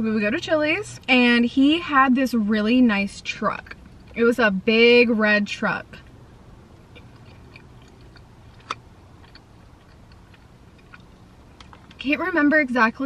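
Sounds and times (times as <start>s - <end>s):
person chewing: 6.0s - 12.0s
wet mouth clicks: 6.8s - 12.0s.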